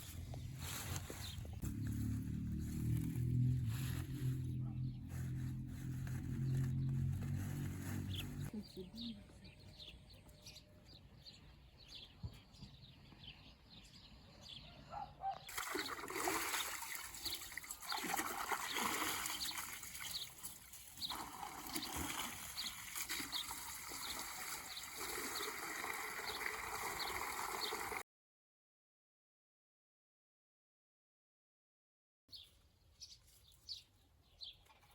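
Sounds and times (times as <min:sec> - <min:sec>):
water splashing and trickling: 0:00.1 - 0:04.4, 0:15.5 - 0:28.0.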